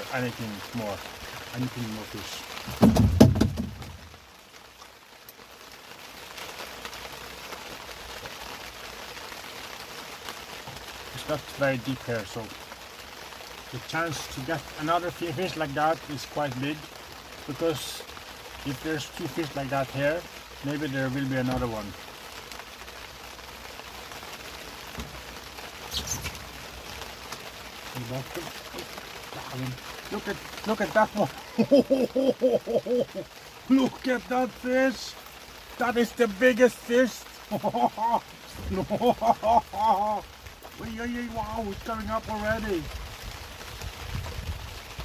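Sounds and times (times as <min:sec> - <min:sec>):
heavy rain falling: 0:00.0 - 0:45.0
low knocks: 0:02.7 - 0:04.0.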